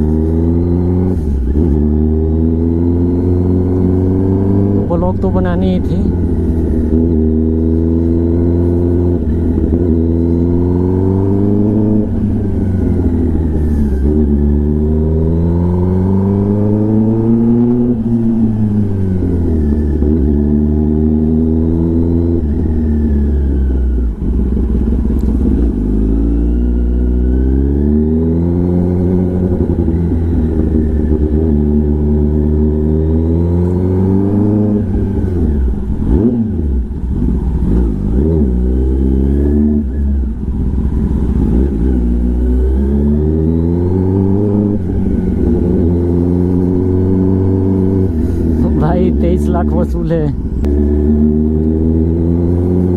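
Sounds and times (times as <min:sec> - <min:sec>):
motorcycle accelerating through gears: 0:00.0 - 0:52.9.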